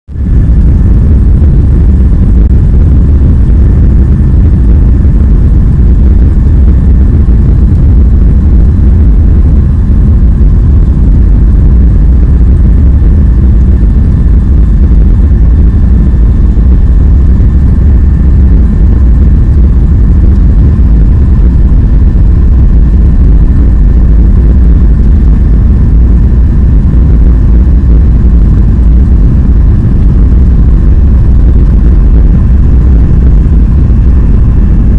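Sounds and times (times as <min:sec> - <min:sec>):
faint high whine: 0:00.0 - 0:34.9
jet airliner engine rumble: 0:00.0 - 0:34.9.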